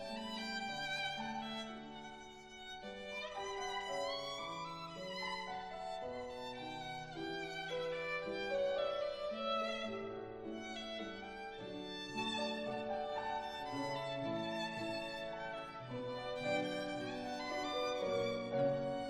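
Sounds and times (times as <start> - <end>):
solo violin melody: 0.0 - 19.0.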